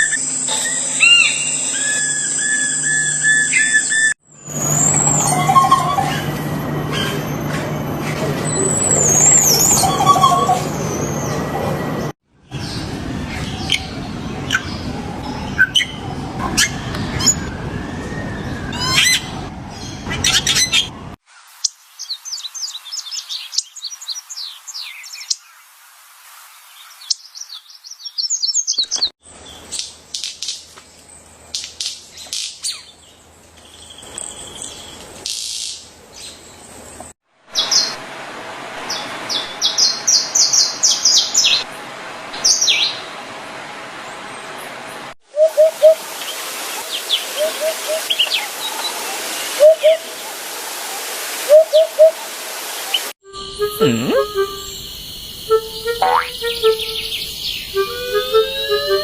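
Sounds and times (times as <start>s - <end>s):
birds chirping and calling: 0.0s - 7.6s, 8.4s - 12.0s, 45.4s - 50.0s, 53.7s - 59.0s.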